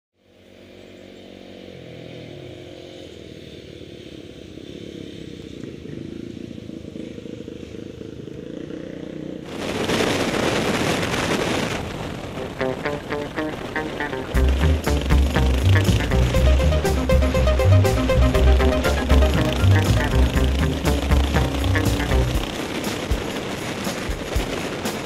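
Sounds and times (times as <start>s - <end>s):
motorcycle engine: 6.0s - 9.6s, 12.4s - 25.0s
wind noise: 9.5s - 17.2s, 18.1s - 25.0s.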